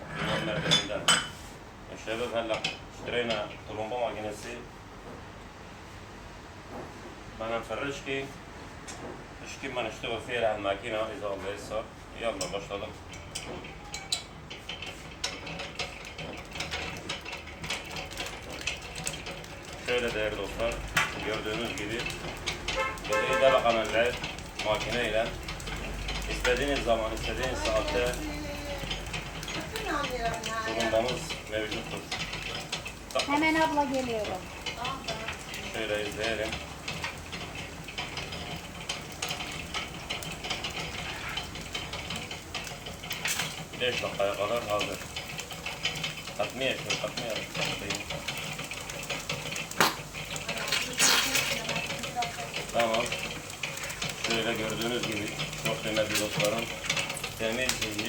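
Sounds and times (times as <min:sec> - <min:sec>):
mechanical clicks and ratcheting: 0:12.4 - 0:58.0.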